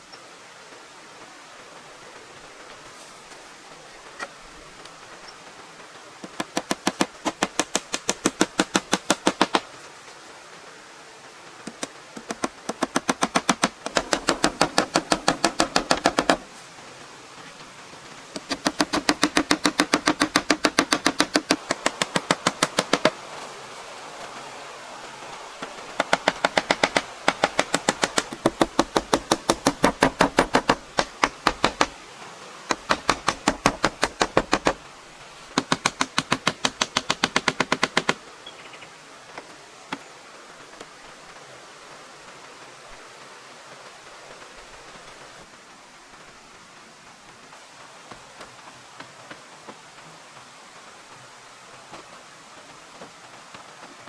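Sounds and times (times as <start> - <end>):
rapid even knocking: 11.7 - 16.5, 18.4 - 23.2, 25.6 - 32.0, 32.7 - 34.8, 35.6 - 38.2.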